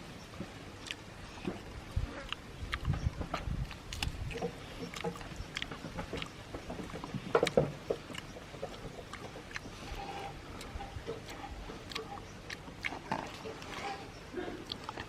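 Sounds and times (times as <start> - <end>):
person chewing and smacking food: 0.3 - 15.0.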